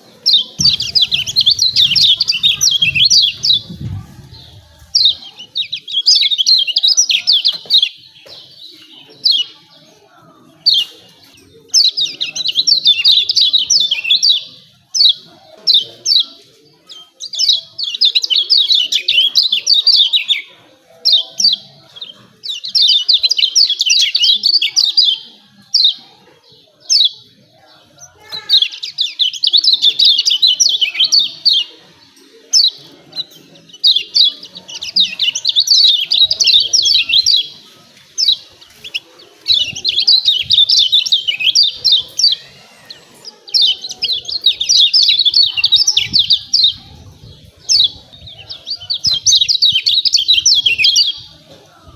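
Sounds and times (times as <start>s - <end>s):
bird chirping rapidly: 0.3s - 7.2s.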